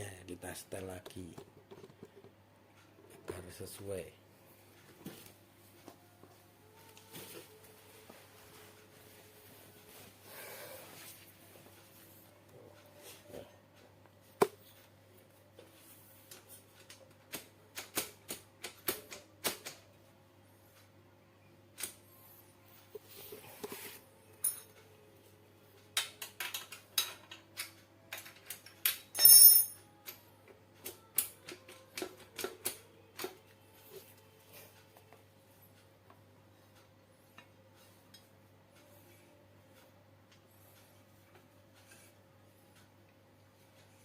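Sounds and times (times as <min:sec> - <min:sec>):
hand tools clinking on metal: 0:28.8 - 0:29.8.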